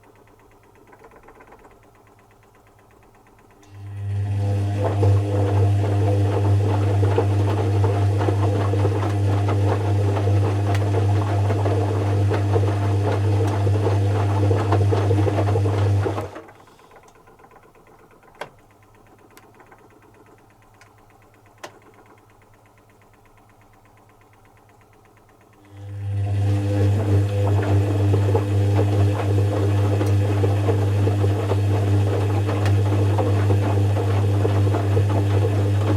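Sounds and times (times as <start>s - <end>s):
faint clicks: 0.0s - 3.8s, 16.9s - 25.7s
washing machine humming and rattling: 0.0s - 35.9s.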